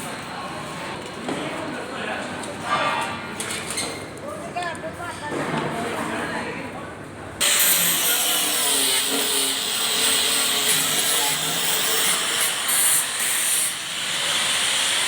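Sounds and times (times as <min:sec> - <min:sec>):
power tool on metal: 0:07.4 - 0:15.0.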